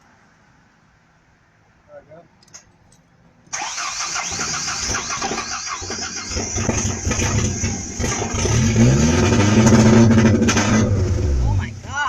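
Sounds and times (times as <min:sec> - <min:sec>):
truck starter cranking: 0:03.5 - 0:11.5
truck engine running: 0:03.6 - 0:12.0.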